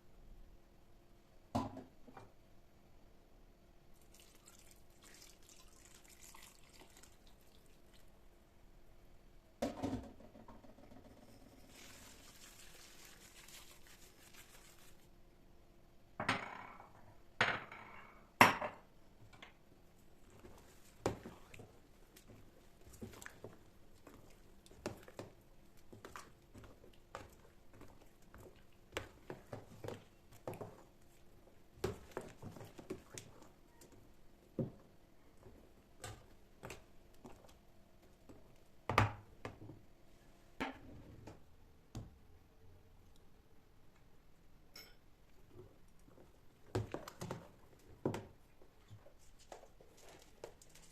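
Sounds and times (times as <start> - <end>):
kitchenware clattering: 44.7 - 45.0.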